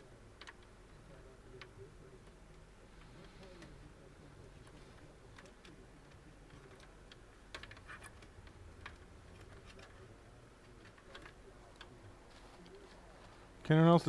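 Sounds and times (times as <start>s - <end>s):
clicks of cables and plastic parts: 4.5s - 13.3s.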